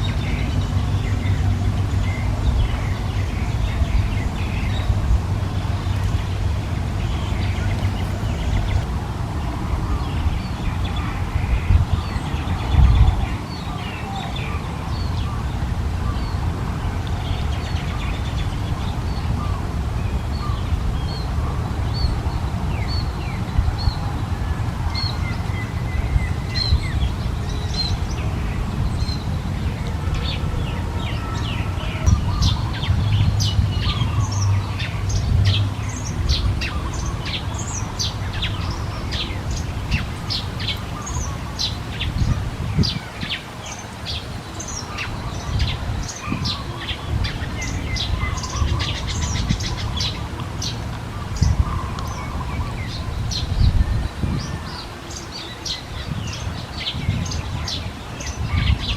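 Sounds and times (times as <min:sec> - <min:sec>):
steady low rumble: 0:00.0 - 0:43.1
small birds chirping: 0:00.0 - 0:58.9.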